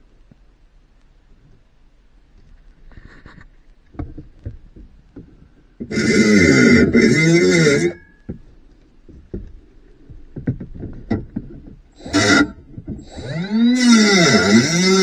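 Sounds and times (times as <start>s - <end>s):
small scraping and tapping: 2.4s - 15.0s
battery cutting tool running: 12.0s - 15.0s.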